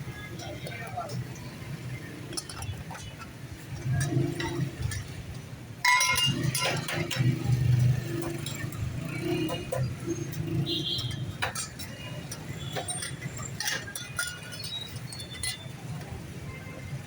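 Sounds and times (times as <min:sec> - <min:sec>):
metal clinks: 0:00.2 - 0:16.6.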